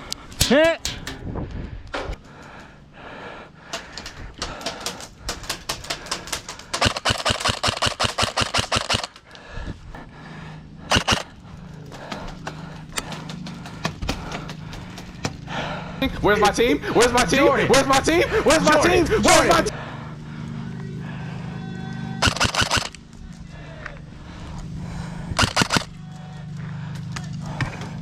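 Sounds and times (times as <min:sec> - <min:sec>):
airsoft guns firing: 0:04.6 - 0:09.2, 0:10.9 - 0:11.3, 0:22.2 - 0:23.0, 0:25.4 - 0:25.9
loud gun crack: 0:06.8 - 0:09.2, 0:10.9 - 0:11.3, 0:22.2 - 0:23.0, 0:25.4 - 0:25.9.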